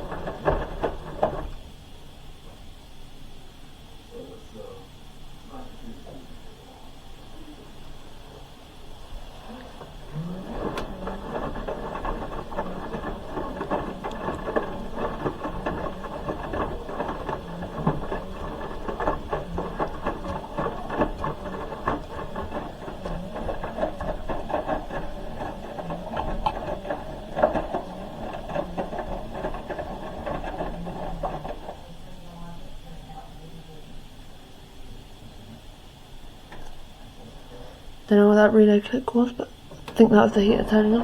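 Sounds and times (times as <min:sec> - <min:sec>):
laundry tumbling with knocks: 0:00.0 - 0:02.6, 0:07.7 - 0:34.4, 0:38.1 - 0:41.0
washing machine motor running: 0:00.0 - 0:41.0.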